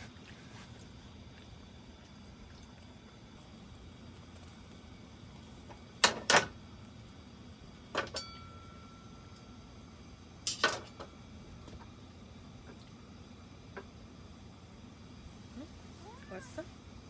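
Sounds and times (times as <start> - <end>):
tableware clinking: 8.0 - 8.8, 10.5 - 11.1.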